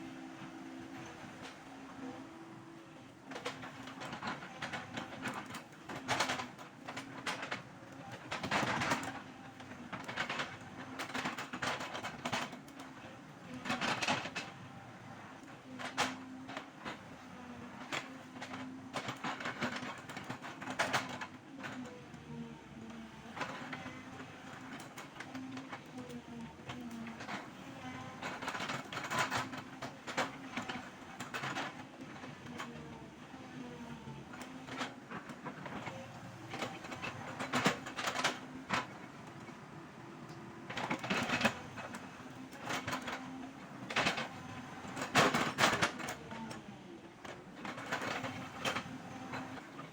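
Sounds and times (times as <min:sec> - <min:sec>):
excavator diesel engine humming: 0:00.0 - 0:03.3.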